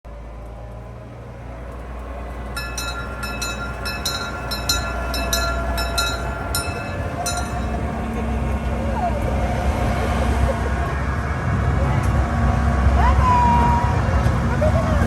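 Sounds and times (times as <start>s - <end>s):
train rumbling: 0.1s - 15.0s
sharp metallic rings: 2.5s - 8.7s.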